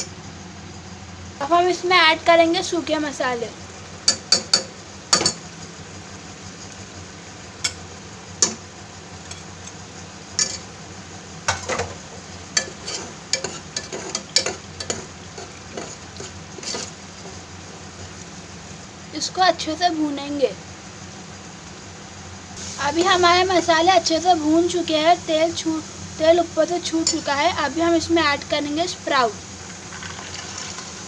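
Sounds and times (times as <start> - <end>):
food sizzling in a pot: 0.0 - 31.0
ladle clinking and scraping pot: 10.4 - 10.7, 12.6 - 17.4.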